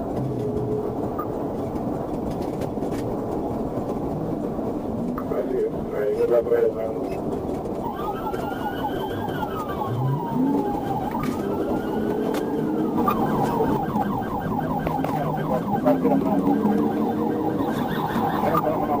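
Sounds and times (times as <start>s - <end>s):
police siren wailing: 7.8s - 19.0s
police siren yelping: 7.8s - 19.0s.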